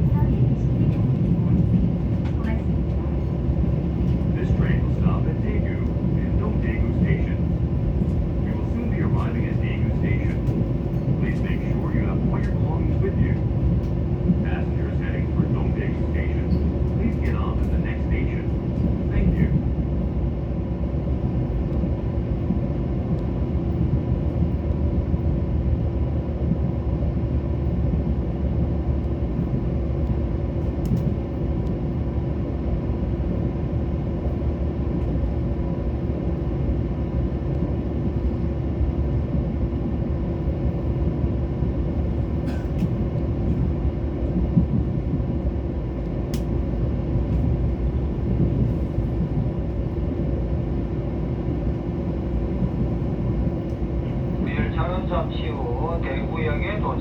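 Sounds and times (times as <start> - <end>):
train rumbling on track: 0.0 - 57.0
faint clicks: 46.3 - 46.5.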